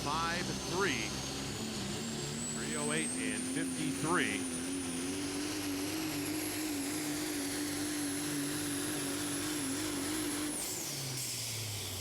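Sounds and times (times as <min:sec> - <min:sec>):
turbo whine: 0:00.0 - 0:08.7
diesel truck engine running: 0:00.0 - 0:09.8.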